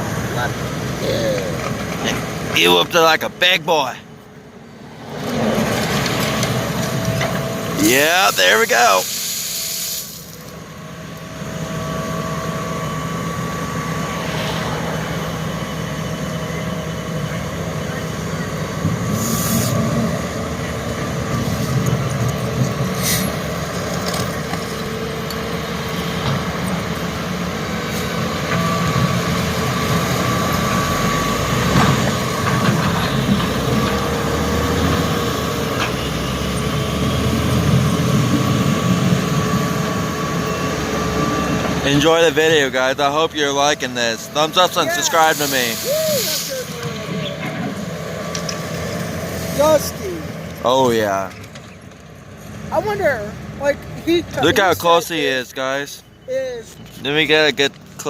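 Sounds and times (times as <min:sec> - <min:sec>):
diesel construction machinery: 0:00.0 - 0:58.0
short hiss: 0:09.0 - 0:10.5, 0:45.3 - 0:46.7.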